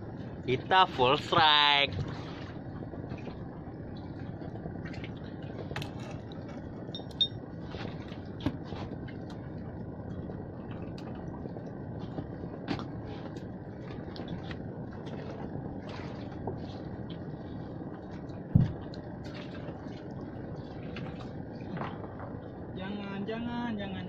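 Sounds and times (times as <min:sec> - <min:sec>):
boat on water: 0:00.0 - 0:24.0.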